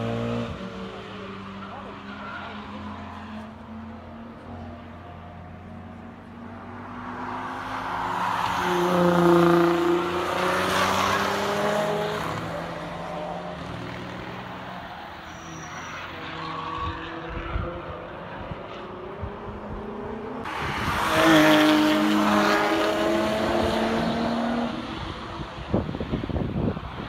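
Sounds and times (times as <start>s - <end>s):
race car passing at speed: 0.0s - 27.0s.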